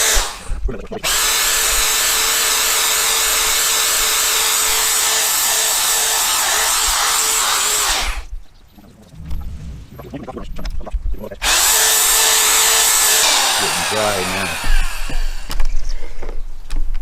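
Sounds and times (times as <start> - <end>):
electric drill running: 0.0 - 8.3, 11.4 - 15.8.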